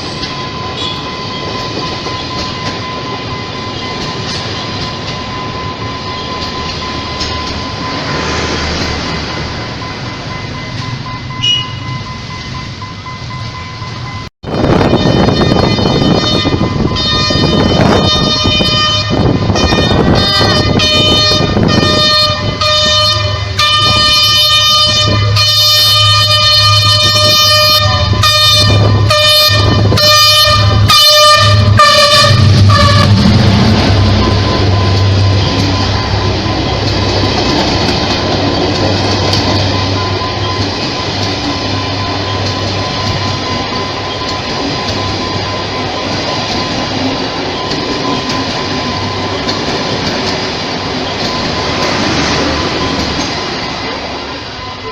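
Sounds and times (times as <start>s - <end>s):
train rumble: 0.0s - 54.9s
train horn blasts: 11.4s - 11.9s, 14.6s - 37.0s.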